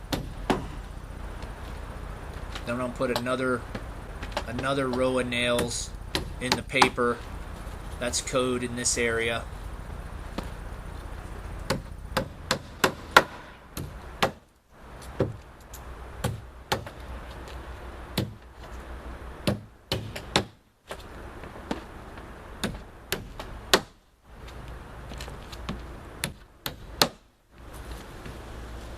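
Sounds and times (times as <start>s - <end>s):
hammer striking roofing nails: 0.1s - 0.8s, 4.4s - 7.0s, 11.7s - 14.5s, 16.2s - 17.0s, 19.4s - 20.6s, 22.6s - 24.0s, 26.2s - 27.2s.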